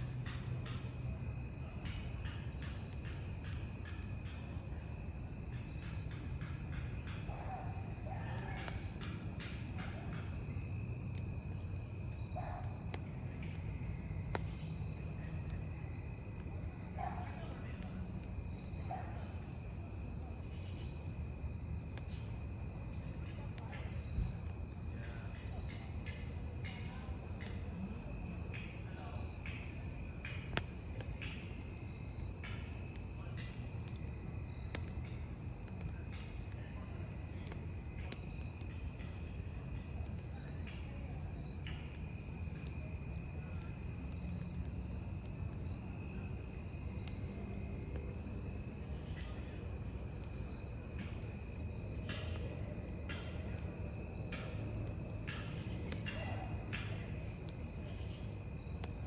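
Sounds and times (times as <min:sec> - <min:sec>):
campfire crackling: 0:00.0 - 0:59.0
crickets trilling: 0:00.0 - 0:59.0.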